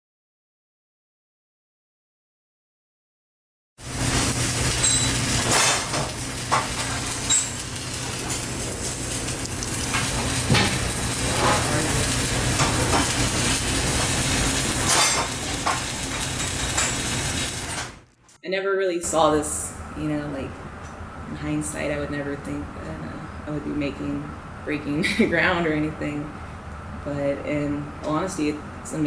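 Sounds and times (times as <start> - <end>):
welding arc crackling: 3.8 - 18.4
low steady hum: 18.9 - 29.0.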